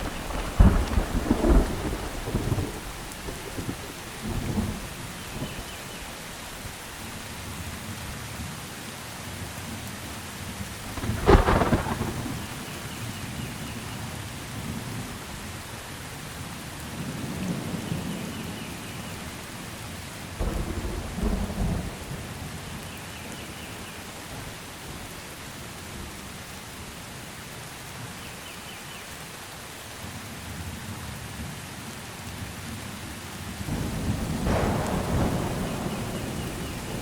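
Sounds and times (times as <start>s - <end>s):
thunder clap: 0.0s - 5.7s, 10.8s - 13.2s, 20.4s - 22.9s, 33.7s - 37.0s
thunder rumbles: 0.0s - 6.8s, 10.6s - 15.6s, 16.8s - 26.2s, 33.4s - 37.0s
steady rain: 0.0s - 37.0s.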